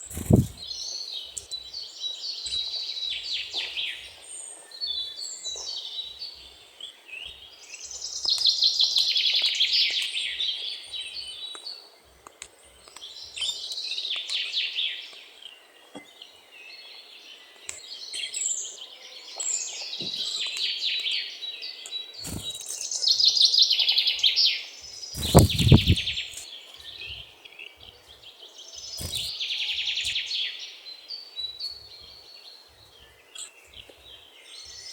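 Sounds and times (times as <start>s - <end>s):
bird singing rapid chattering phrases: 0.0s - 1.1s, 22.0s - 23.2s, 25.0s - 27.2s, 28.7s - 30.5s
low thump: 25.2s - 26.1s.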